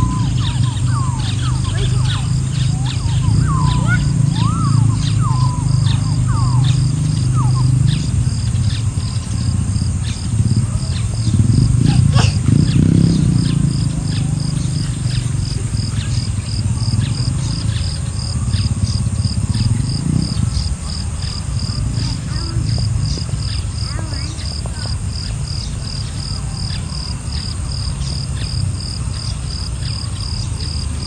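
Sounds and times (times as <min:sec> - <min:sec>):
short falling bird calls: 0:00.0 - 0:08.9
loud low rumble: 0:00.0 - 0:29.6.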